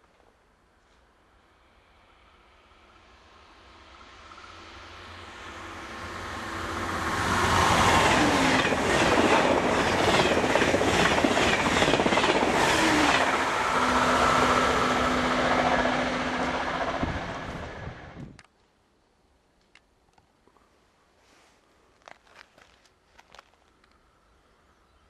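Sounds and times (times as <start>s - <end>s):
high-speed train passing: 1.1s - 18.4s.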